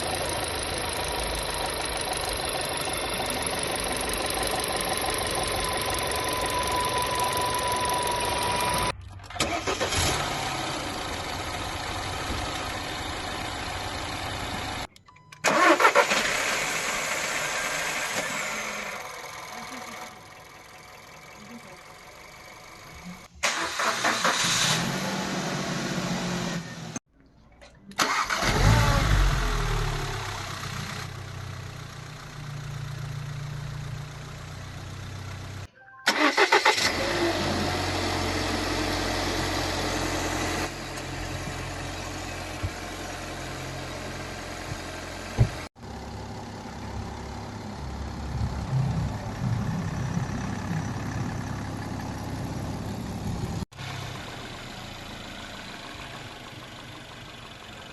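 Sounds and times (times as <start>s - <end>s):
car starter cranking: 0.0s - 10.4s, 15.3s - 17.5s, 23.4s - 24.8s, 27.9s - 28.9s, 36.1s - 37.2s
car engine idling: 0.0s - 14.9s, 15.5s - 23.9s, 28.0s - 35.7s, 36.3s - 57.9s.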